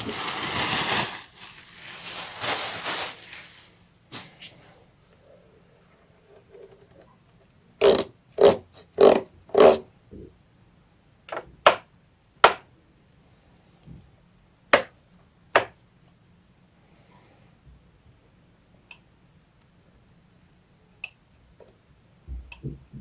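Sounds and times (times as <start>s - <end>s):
plastic packaging crinkling: 0.0s - 4.3s.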